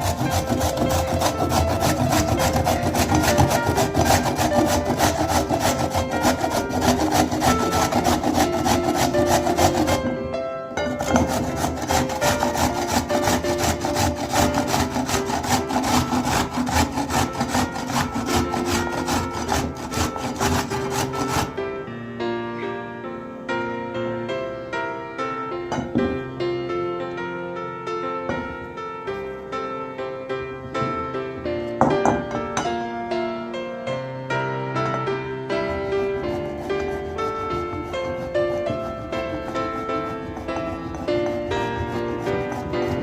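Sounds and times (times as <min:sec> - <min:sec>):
grater scraping vegetables: 0:00.0 - 0:10.2, 0:10.9 - 0:21.6, 0:35.6 - 0:43.0
background music: 0:00.0 - 0:43.0.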